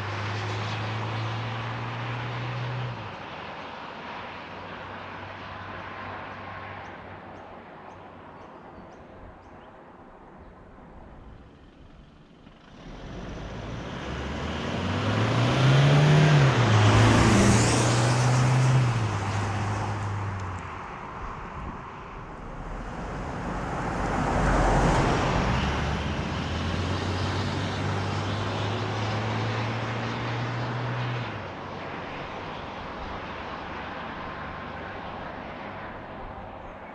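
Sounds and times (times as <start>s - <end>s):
tyre and road noise: 11.4s - 36.9s
diesel engine driving: 11.5s - 33.2s.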